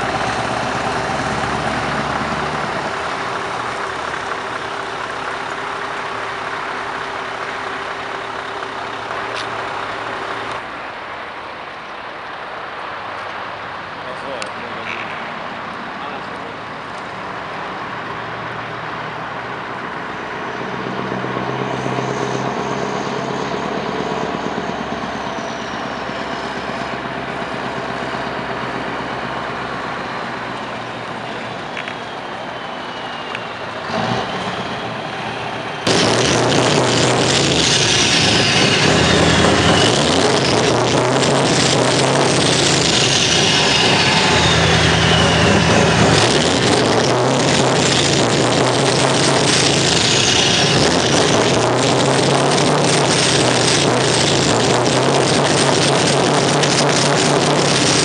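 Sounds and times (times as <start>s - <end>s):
diesel truck engine running: 0.0s - 13.0s, 14.0s - 58.0s
loud music with falling sweeps: 35.8s - 58.0s.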